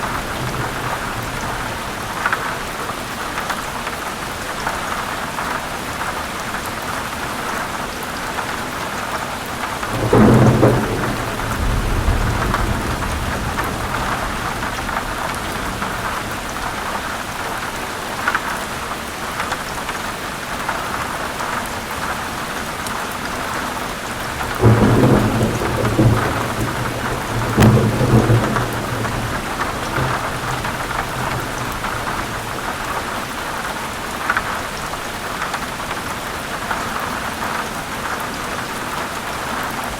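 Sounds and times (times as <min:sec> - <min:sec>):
thunder rumbling: 0:00.0 - 0:02.3, 0:09.8 - 0:17.6, 0:24.2 - 0:33.1
heavy rain: 0:00.0 - 0:39.9.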